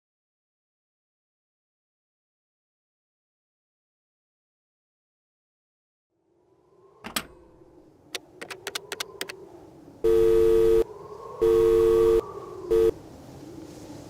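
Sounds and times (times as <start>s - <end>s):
sharp clicks: 8.1s - 9.4s
electronic beep tone: 10.0s - 10.8s, 11.4s - 12.9s.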